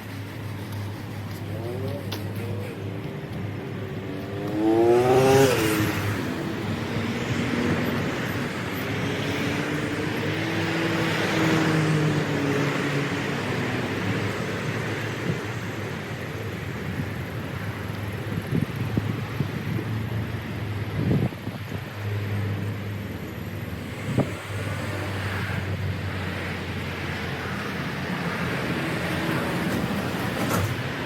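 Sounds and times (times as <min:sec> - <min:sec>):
vehicle engine revving: 0:00.2 - 0:14.8.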